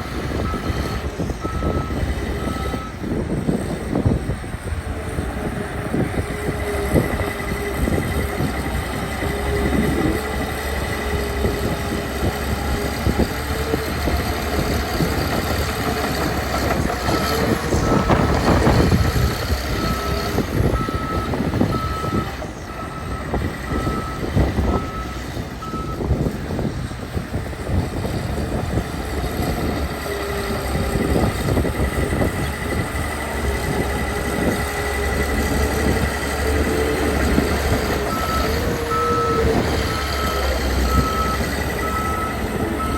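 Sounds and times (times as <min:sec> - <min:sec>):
diesel engine running under load: 0:00.0 - 0:42.9
reversing alarm beeping: 0:00.4 - 0:03.0, 0:17.1 - 0:26.0, 0:38.1 - 0:42.9.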